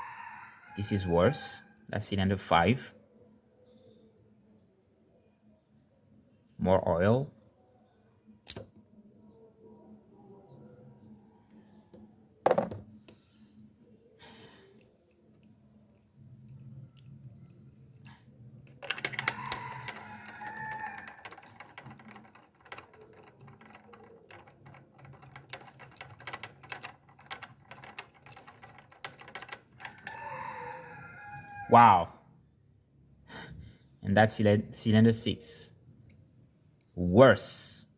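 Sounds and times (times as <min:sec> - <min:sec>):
ratchet wrench clicking: 0:08.5 - 0:08.7, 0:18.8 - 0:30.2
sharp metallic clink: 0:08.5 - 0:08.8.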